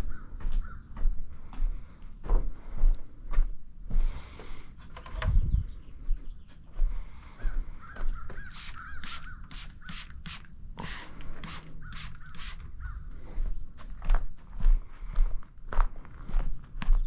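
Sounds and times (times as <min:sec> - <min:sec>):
bird calling: 0:07.3 - 0:10.2, 0:10.8 - 0:13.1.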